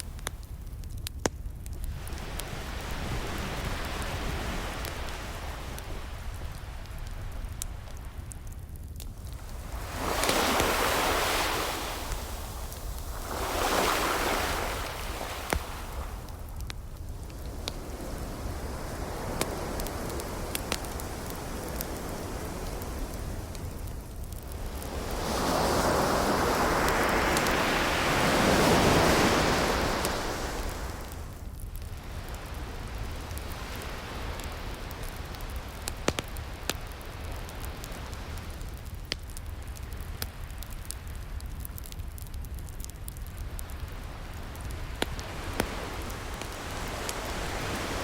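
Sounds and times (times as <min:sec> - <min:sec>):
wood fire crackling: 0:00.0 - 0:48.0
ocean waves washing in: 0:01.9 - 0:08.3, 0:09.2 - 0:35.9, 0:44.9 - 0:48.0.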